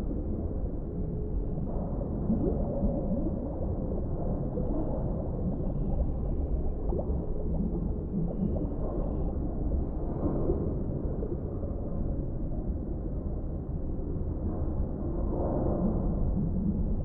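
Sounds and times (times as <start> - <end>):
muffled low underwater rumble: 0.0 - 17.0
rising bubbling blips: 2.1 - 10.0.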